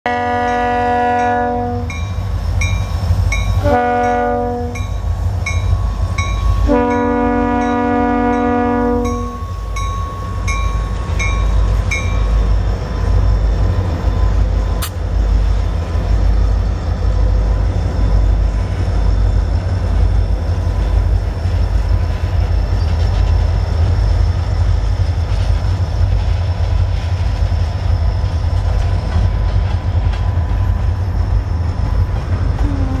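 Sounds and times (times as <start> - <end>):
diesel locomotives rumbling: 0.0 - 33.0
bell ringing: 9.0 - 12.6.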